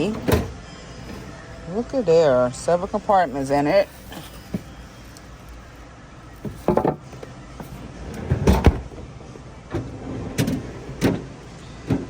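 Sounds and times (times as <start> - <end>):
refrigerator knocks and thumps: 6.4 - 9.0.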